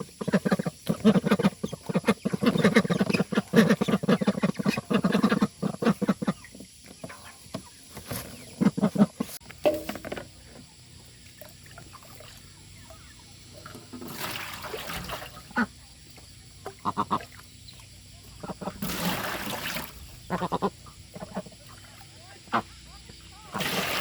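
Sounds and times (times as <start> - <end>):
waterfowl honking: 15.1 - 15.9, 16.6 - 24.0.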